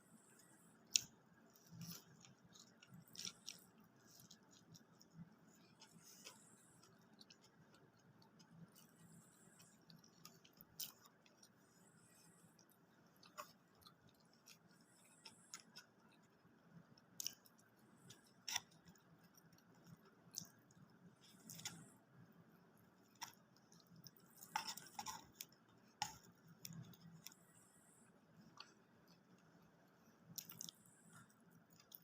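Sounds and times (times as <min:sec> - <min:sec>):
person chewing food: 0:00.1 - 0:32.0.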